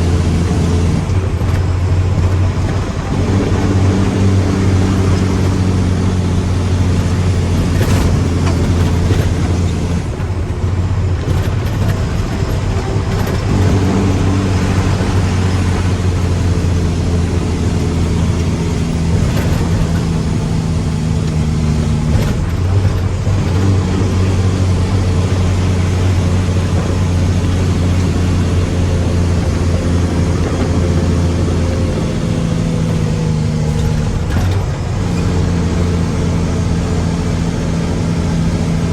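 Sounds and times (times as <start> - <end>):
diesel truck engine drone: 0.0 - 38.9.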